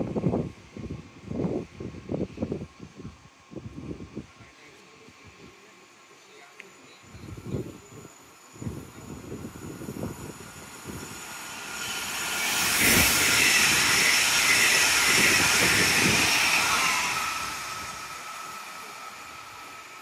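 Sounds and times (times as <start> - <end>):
train rushing past: 7.8 - 20.0.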